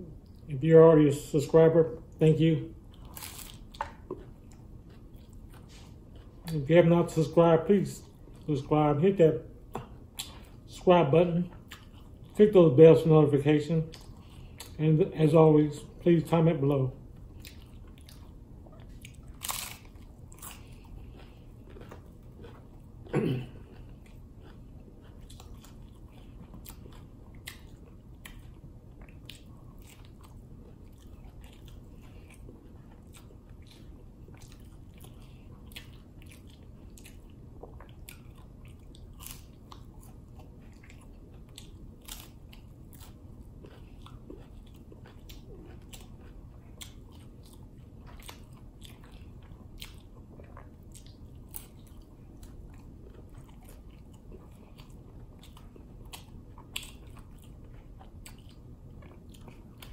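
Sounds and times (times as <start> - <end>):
crunching taco shell: 3.0 - 3.8, 19.0 - 28.4.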